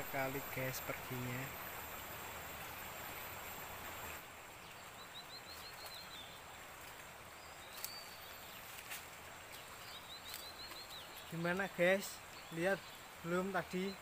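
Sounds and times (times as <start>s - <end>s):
high insect whine: 0.0s - 4.2s
forest hiss: 0.0s - 14.0s
small bird chirping: 4.7s - 6.6s, 7.4s - 8.9s, 9.5s - 13.1s.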